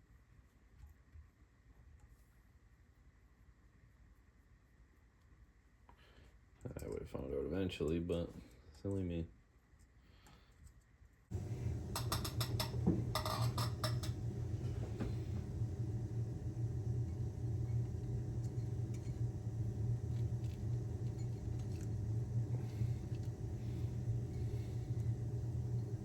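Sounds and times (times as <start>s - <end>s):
low machine hum: 11.3s - 26.0s.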